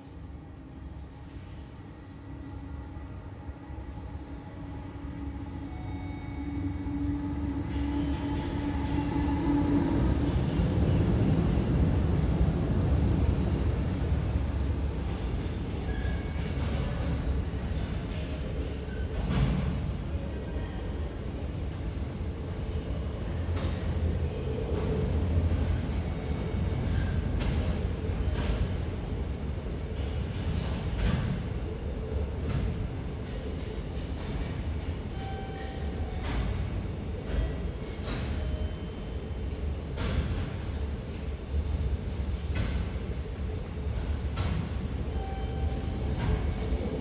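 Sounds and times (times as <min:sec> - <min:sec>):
electric locomotive passing: 0:00.2 - 0:20.2
rail rumble: 0:00.8 - 0:47.0
faint rail clacks: 0:26.9 - 0:28.9, 0:32.4 - 0:38.8, 0:39.5 - 0:41.3, 0:42.2 - 0:47.0.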